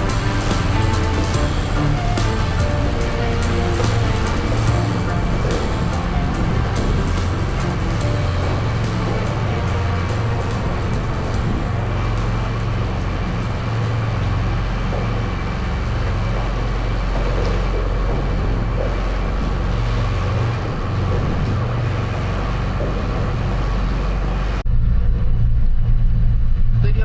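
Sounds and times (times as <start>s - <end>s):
truck engine and road rumble: 0.0s - 27.0s.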